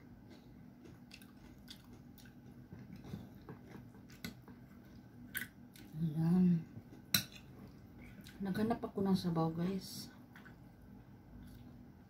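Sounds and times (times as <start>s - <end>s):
quiet chewing of food: 0.0s - 6.0s, 6.7s - 8.4s, 11.3s - 11.9s.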